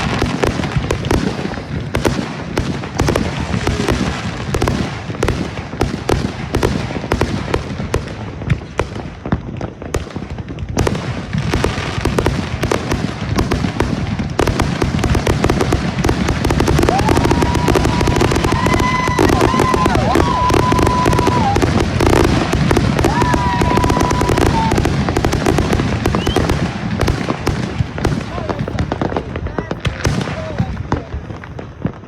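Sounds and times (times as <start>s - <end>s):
fireworks shots and crackling: 0.0s - 32.0s
low fireworks booms: 0.0s - 32.0s
steady high whistle: 26.1s - 26.5s.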